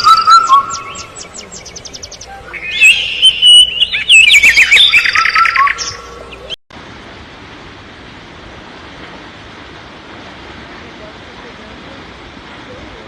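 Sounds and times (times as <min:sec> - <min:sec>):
songbird whistling and trilling: 0:00.0 - 0:06.6.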